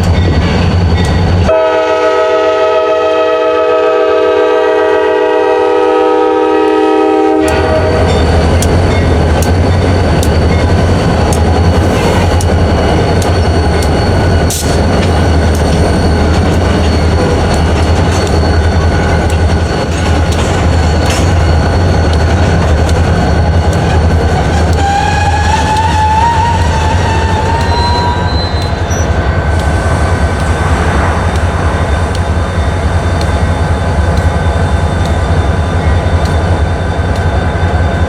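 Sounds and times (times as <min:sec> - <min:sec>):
train rumbling past: 0:00.0 - 0:38.0
train horn chord: 0:01.5 - 0:07.9
wheels clicking over rail joints: 0:07.4 - 0:29.7.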